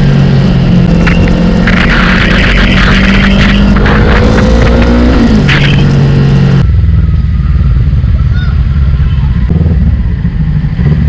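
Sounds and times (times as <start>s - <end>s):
motorcycle engine low rumble: 0.0s - 11.0s.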